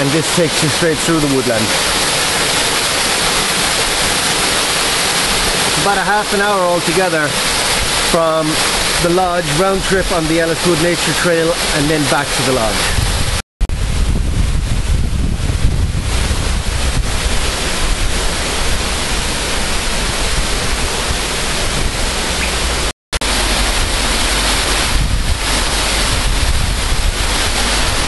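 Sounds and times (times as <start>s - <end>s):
wind buffeting microphone: 12.8s - 28.0s.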